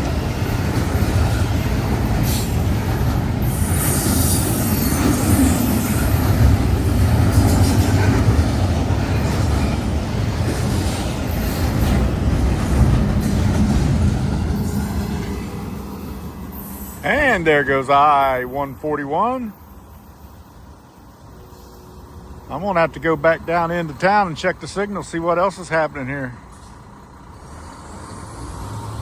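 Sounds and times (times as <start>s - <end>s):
wheel clatter and squeal: 0.0s - 17.2s
freight train rumbling past: 0.0s - 29.0s.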